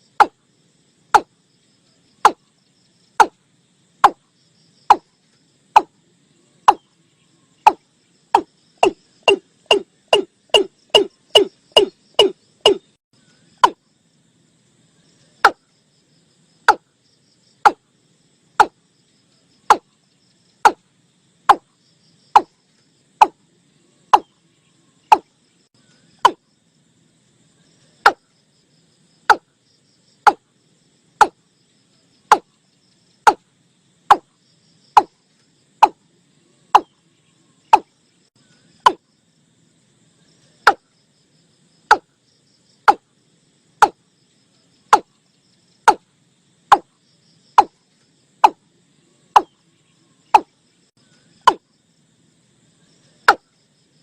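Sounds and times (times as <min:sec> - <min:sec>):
bird calling hollow notes: 0:00.0 - 0:00.4, 0:03.2 - 0:03.4, 0:04.9 - 0:05.1, 0:05.8 - 0:06.0, 0:06.6 - 0:07.0, 0:07.6 - 0:13.8, 0:18.6 - 0:18.8, 0:19.6 - 0:20.0, 0:22.3 - 0:22.6, 0:23.2 - 0:23.4, 0:24.1 - 0:24.4, 0:25.0 - 0:25.3, 0:26.1 - 0:26.4, 0:28.0 - 0:28.3, 0:29.3 - 0:29.5, 0:30.3 - 0:30.5, 0:32.3 - 0:32.5, 0:35.8 - 0:36.0, 0:36.7 - 0:37.0, 0:41.9 - 0:42.1, 0:44.9 - 0:45.1, 0:49.3 - 0:49.6, 0:50.3 - 0:50.5, 0:51.4 - 0:51.6.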